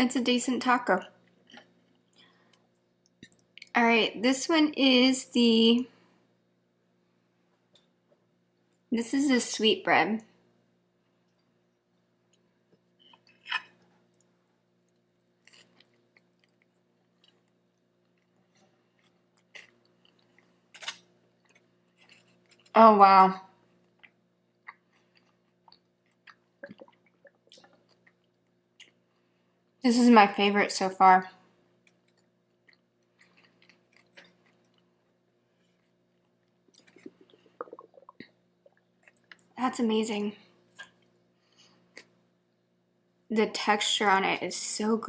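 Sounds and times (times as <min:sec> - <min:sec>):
soft chewing: 0:01.0 - 0:03.8, 0:10.4 - 0:22.8, 0:23.4 - 0:29.8, 0:31.4 - 0:39.6, 0:40.4 - 0:43.0
mouth clicks and smacks: 0:25.6 - 0:29.0, 0:36.2 - 0:39.5.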